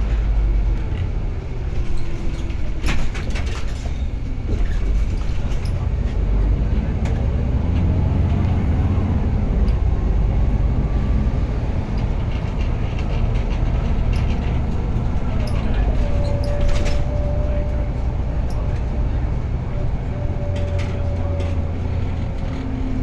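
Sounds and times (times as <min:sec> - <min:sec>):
vehicle low rumble: 0:00.0 - 0:23.0
knocks and rattles: 0:11.1 - 0:17.5.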